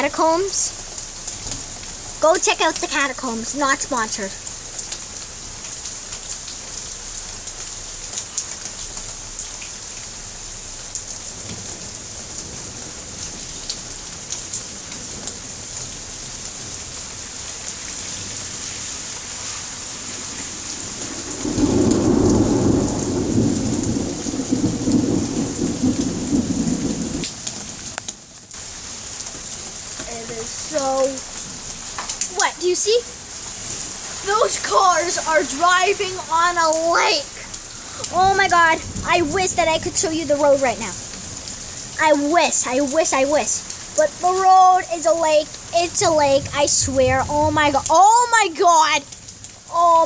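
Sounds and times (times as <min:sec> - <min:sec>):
heavy rain hissing: 0:00.0 - 0:50.0
raindrops ticking close by: 0:00.0 - 0:50.0
thunder rumbling: 0:20.2 - 0:27.9, 0:30.0 - 0:49.8.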